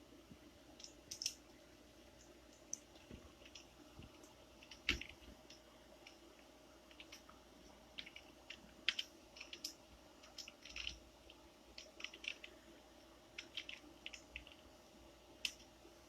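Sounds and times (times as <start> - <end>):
faint steady hum: 0.0 - 16.0
keyboard and mouse clicks: 0.8 - 1.4, 2.2 - 6.2, 6.9 - 7.4, 8.0 - 12.6, 13.4 - 14.6, 15.4 - 15.7.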